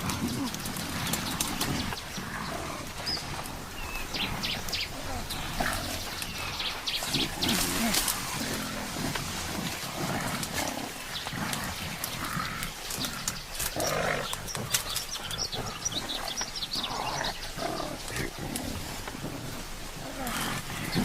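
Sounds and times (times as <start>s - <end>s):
gorillas making low calls: 0.0s - 21.0s
vegetation snapping: 7.1s - 15.4s.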